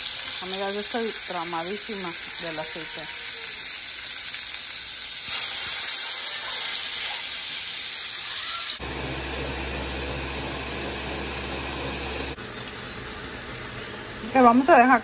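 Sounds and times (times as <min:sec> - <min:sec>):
meat sizzling in oil: 0:00.0 - 0:08.8, 0:12.4 - 0:15.0
blender motor humming: 0:08.7 - 0:14.4.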